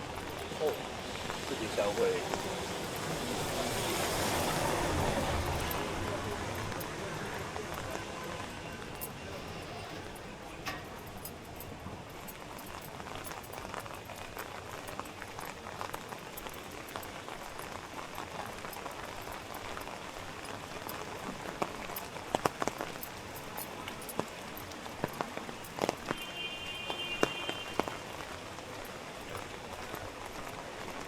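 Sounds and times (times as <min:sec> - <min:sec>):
steady rain pattering: 0:00.0 - 0:31.0.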